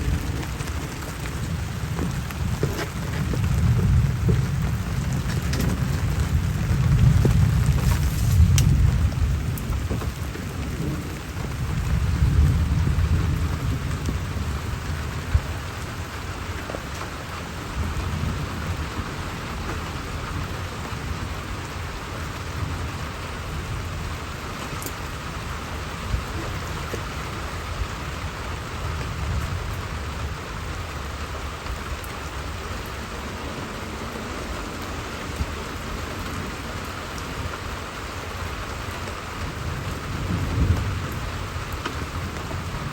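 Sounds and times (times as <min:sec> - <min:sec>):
steady rain falling: 0:00.0 - 0:42.9
thunder rumbling: 0:00.0 - 0:42.9.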